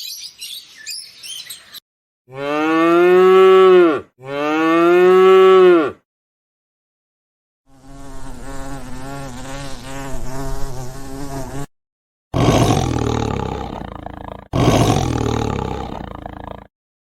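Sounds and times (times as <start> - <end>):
big cat roaring: 12.4 - 16.7.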